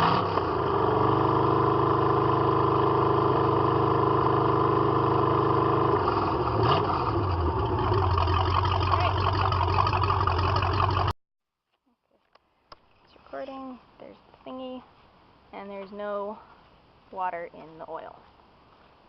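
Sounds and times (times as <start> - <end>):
boat engine running: 0.0 - 11.1.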